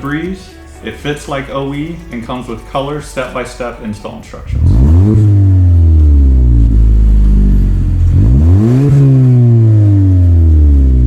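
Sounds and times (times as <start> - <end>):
car engine revving: 4.5 - 11.0.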